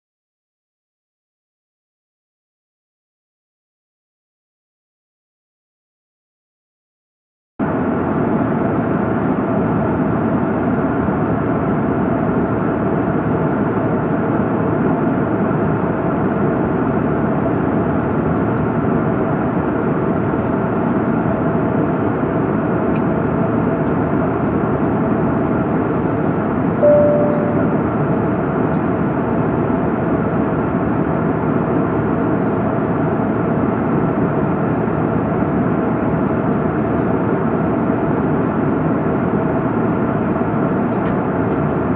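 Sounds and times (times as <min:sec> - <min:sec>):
airliner cabin jet engine noise: 0:07.6 - 0:41.9
short single tone: 0:26.8 - 0:28.2.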